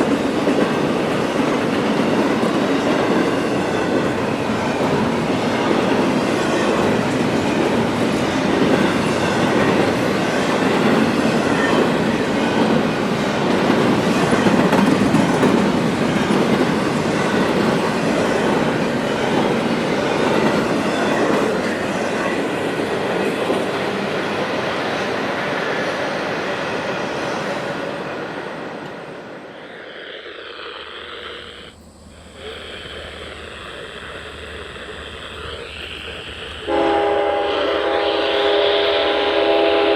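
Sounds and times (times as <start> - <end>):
freight train wheels clattering: 0.0 - 29.1.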